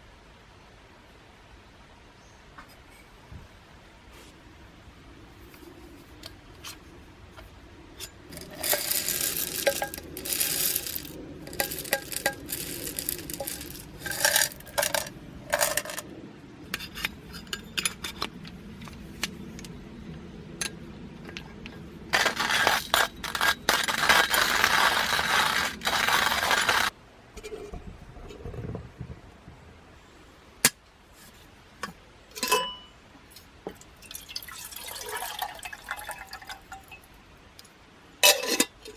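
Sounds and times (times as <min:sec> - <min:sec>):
steady rushing noise: 0:04.6 - 0:27.3
metal cookware clinking and scraping: 0:08.0 - 0:16.0, 0:32.3 - 0:32.9, 0:38.2 - 0:38.9.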